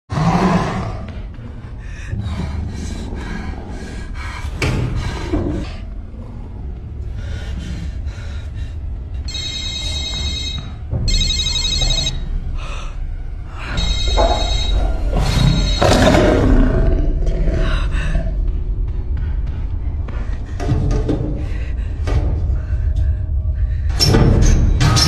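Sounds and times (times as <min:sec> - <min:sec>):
low rumble: 0:00.8 - 0:25.0
telephone bell ringing: 0:09.3 - 0:12.2, 0:13.8 - 0:16.2.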